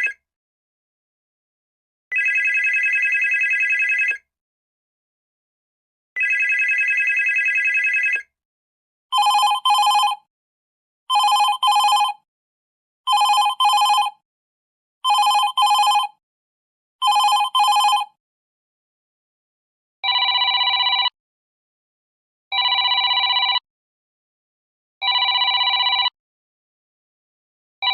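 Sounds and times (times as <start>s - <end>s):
old telephone ringing: 9.2s - 10.2s, 11.1s - 12.2s, 13.1s - 14.1s, 15.1s - 16.1s, 17.0s - 18.1s.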